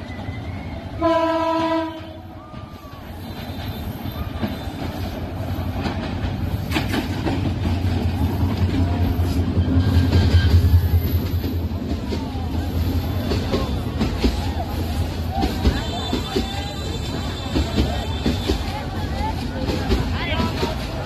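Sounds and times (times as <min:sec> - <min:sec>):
train rumbling: 0:00.0 - 0:21.0
train horn: 0:01.0 - 0:02.3.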